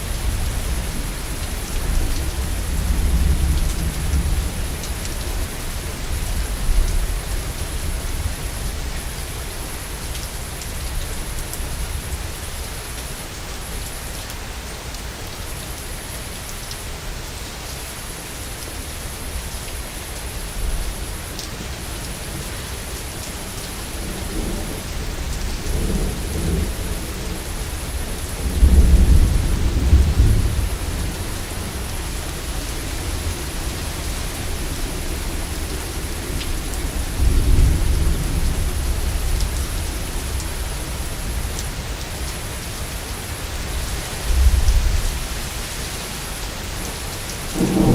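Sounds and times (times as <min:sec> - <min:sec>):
steady rain: 0:00.0 - 0:47.9
rolling thunder: 0:23.9 - 0:40.4, 0:47.5 - 0:47.9.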